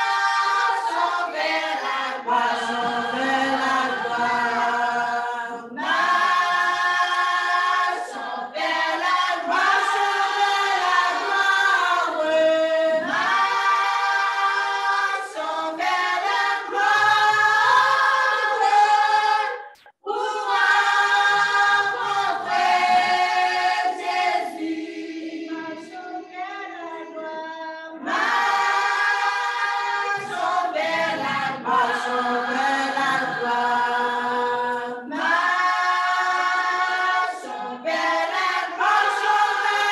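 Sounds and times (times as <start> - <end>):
choir singing a hymn: 0.0 - 27.3, 27.9 - 39.9.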